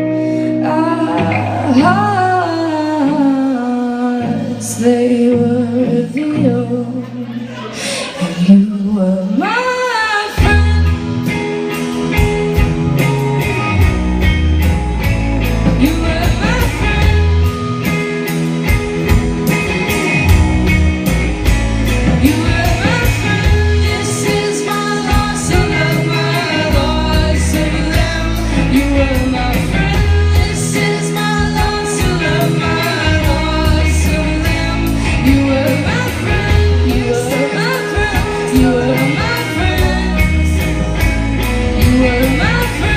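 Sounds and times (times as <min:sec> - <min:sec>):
person singing: 0:00.0 - 0:11.8, 0:15.6 - 0:17.6, 0:22.0 - 0:42.9
live rock band playing: 0:00.0 - 0:42.9
steady drum beat: 0:12.1 - 0:42.9.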